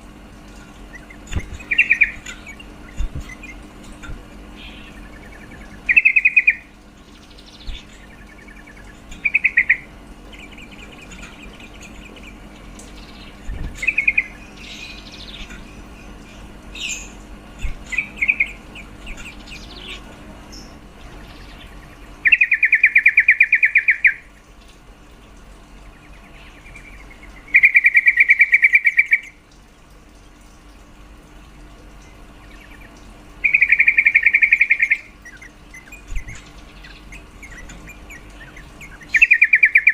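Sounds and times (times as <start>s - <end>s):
low steady hum: 0.0s - 39.9s
bulbul chattering trills: 0.5s - 29.4s, 32.0s - 39.9s
faint bird chirps: 4.6s - 24.3s, 32.4s - 39.9s.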